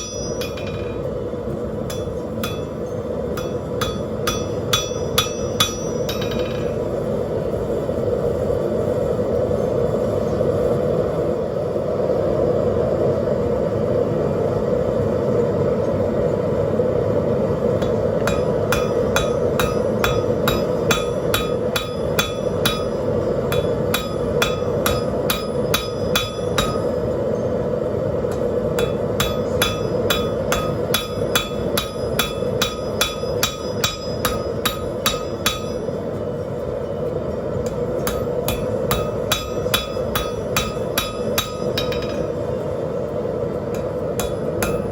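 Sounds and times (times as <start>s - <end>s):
hammer ringing on anvil: 0.0s - 1.1s, 1.9s - 6.8s, 17.8s - 27.5s, 28.3s - 36.2s, 36.9s - 42.4s, 43.7s - 44.9s
forge burner rushing: 0.0s - 44.9s.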